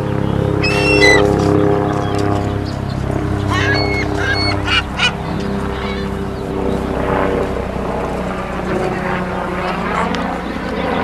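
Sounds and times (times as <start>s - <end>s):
steady low hum: 0.0s - 11.0s
seagulls calling: 0.1s - 7.0s.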